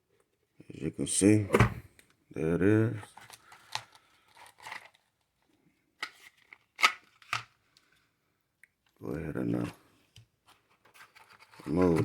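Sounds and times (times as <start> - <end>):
light rustling of packaging: 2.8 - 8.2, 8.8 - 12.0.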